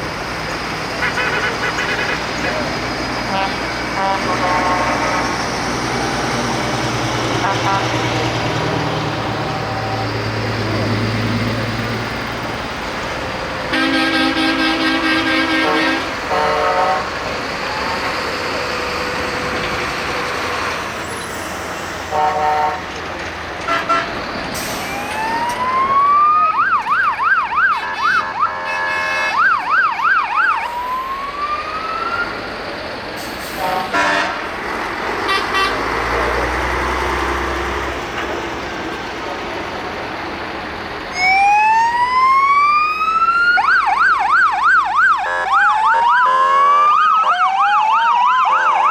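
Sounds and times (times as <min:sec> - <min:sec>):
diesel engines running: 0:00.0 - 0:48.9
fire engine siren: 0:00.0 - 0:48.9
truck air horns: 0:00.9 - 0:08.8, 0:13.7 - 0:25.2, 0:27.7 - 0:29.7, 0:33.2 - 0:34.6, 0:35.2 - 0:38.4, 0:45.2 - 0:47.1.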